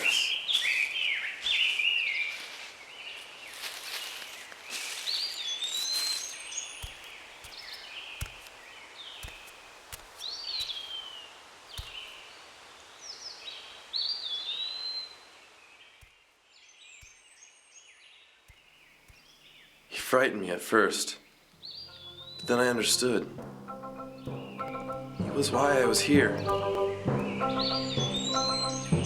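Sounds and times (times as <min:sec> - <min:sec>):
birds singing: 0:00.0 - 0:29.0
outdoor ambience hiss: 0:00.0 - 0:29.0
soft low thumps: 0:21.9 - 0:29.0.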